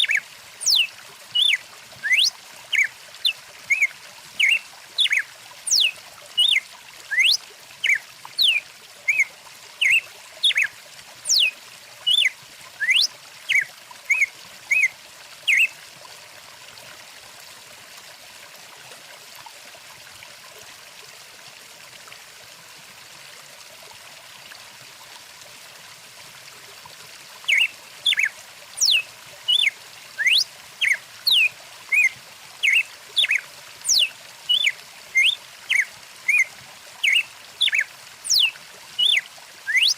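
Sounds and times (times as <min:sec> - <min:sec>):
songbirds chirping and whistling: 0:00.0 - 0:06.6, 0:07.2 - 0:10.7, 0:11.3 - 0:11.5, 0:12.1 - 0:14.9, 0:27.5 - 0:39.9
stream water trickling: 0:00.0 - 0:39.9.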